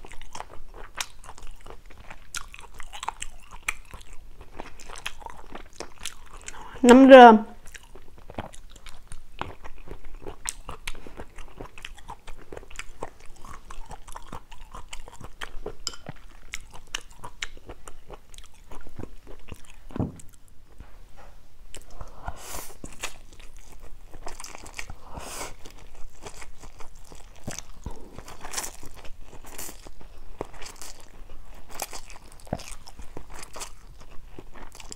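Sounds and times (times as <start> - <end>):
wet chewing with mouth clicks: 0.0 - 6.7, 7.6 - 20.4, 21.7 - 34.9.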